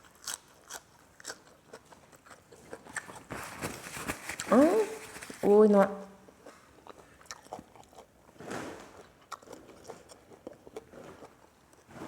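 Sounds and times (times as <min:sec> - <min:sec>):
person chewing food: 0:00.0 - 0:03.6, 0:06.2 - 0:12.0.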